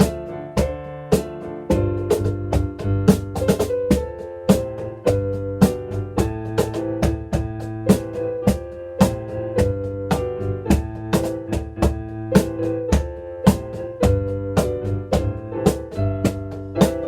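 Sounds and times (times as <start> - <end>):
cajon beat: 0.0 - 17.0
piano chords and melody: 0.0 - 17.0.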